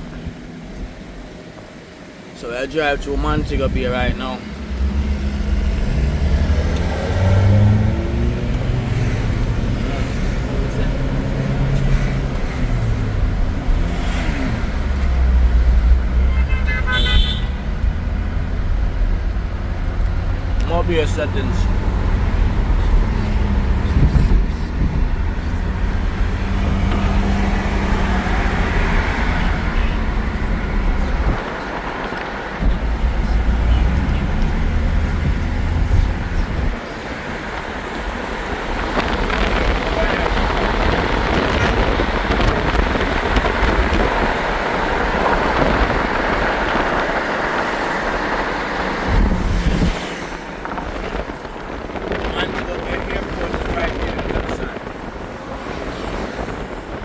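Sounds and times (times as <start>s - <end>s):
car engine hum: 0.0s - 57.0s
road noise: 0.0s - 57.0s
wind buffeting microphone: 17.4s - 57.0s.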